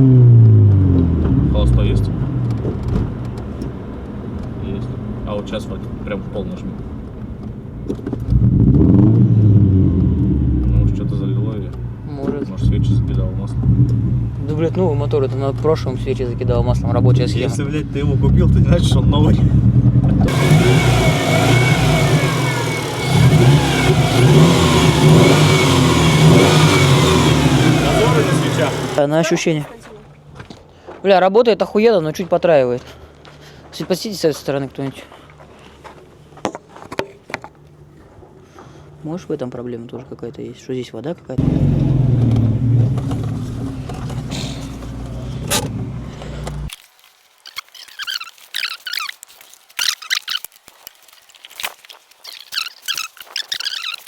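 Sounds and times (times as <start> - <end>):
car engine revving: 0.0 - 7.2, 8.2 - 29.0, 41.4 - 46.7
high wavering chirps: 52.2 - 54.0.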